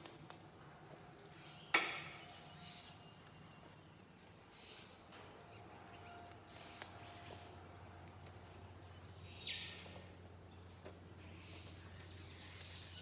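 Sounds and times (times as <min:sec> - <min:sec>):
harsh bird calls: 0:01.3 - 0:03.9, 0:08.8 - 0:13.0.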